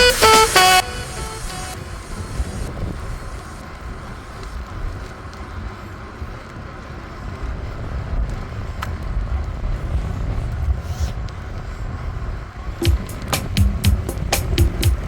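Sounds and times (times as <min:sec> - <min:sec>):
bicycle rumbling along path: 0:02.7 - 0:12.8.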